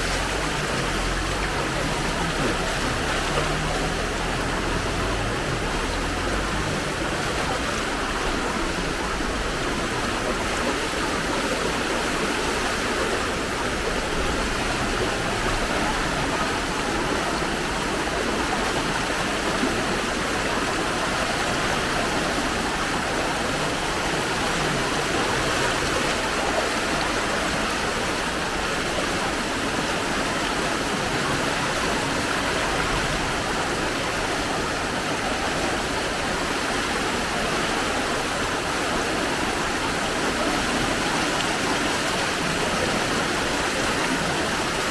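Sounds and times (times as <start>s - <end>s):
rushing floodwater: 0.0s - 44.9s.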